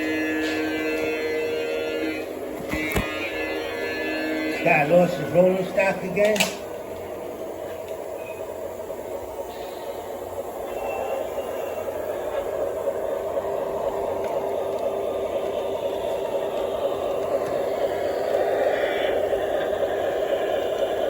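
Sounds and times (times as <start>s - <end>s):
model train motor hum: 0.0s - 21.0s
model train wheel rumble: 0.0s - 21.0s.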